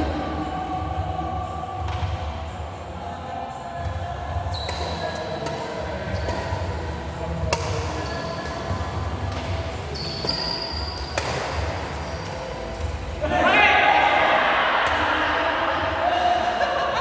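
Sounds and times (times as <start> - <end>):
sneakers squeaking on court floor: 3.8 - 13.2
racket hitting shuttlecock: 4.6 - 13.2, 14.8 - 15.4.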